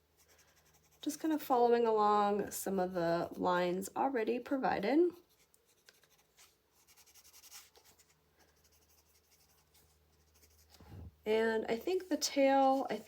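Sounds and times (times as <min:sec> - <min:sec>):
colored pencil scratching paper: 0:00.1 - 0:01.2, 0:05.2 - 0:10.8, 0:11.8 - 0:13.0.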